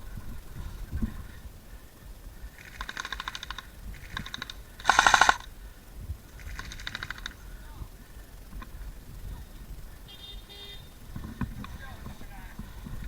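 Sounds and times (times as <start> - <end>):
airsoft guns firing bursts: 2.6 - 5.6, 6.3 - 7.6.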